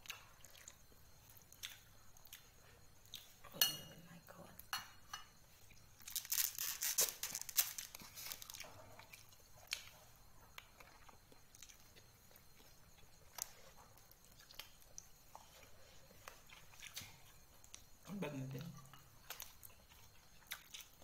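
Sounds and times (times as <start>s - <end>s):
person crunching food: 6.0s - 10.0s, 10.6s - 17.9s, 19.2s - 21.0s.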